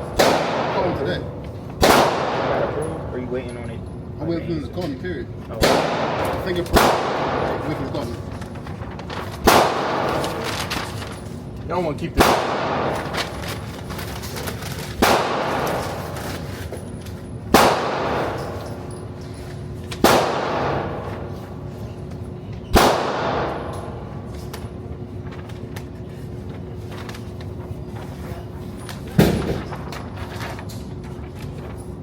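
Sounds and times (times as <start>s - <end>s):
gunshots with ringing tail: 0.0s - 1.2s, 1.8s - 3.0s, 5.6s - 7.8s, 9.4s - 10.4s, 12.2s - 13.1s, 15.0s - 16.0s, 17.5s - 18.6s, 20.0s - 21.2s, 22.7s - 24.0s.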